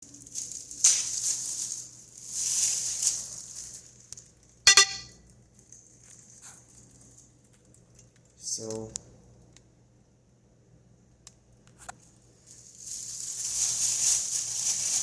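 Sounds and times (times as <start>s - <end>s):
sharp metallic clink: 4.7s - 5.1s.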